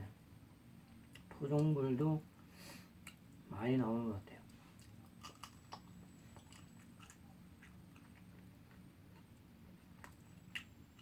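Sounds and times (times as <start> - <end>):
low steady rumble: 0.0 - 11.0
faint crackles and clicks: 4.4 - 11.0.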